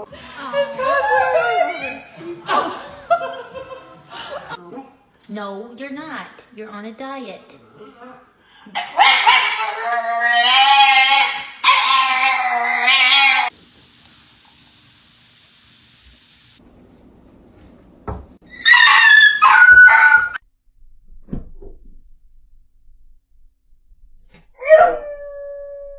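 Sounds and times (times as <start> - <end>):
knock: 18.1 - 18.4
dog whining: 18.4 - 20.4.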